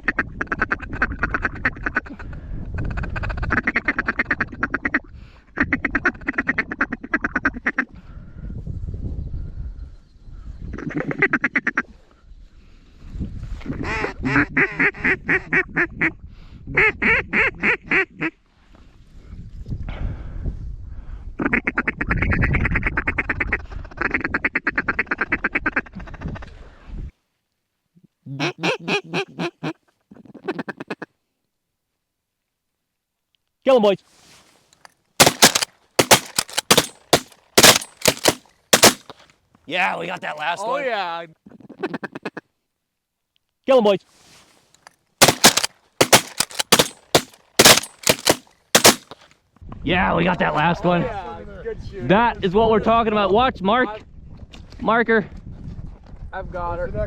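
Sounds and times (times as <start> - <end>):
wind rumble on microphone: 0.1 - 6.8, 7.4 - 11.1, 12.3 - 17.6, 18.8 - 24.0, 51.6 - 57.0
low rumble of wind: 8.0 - 10.8.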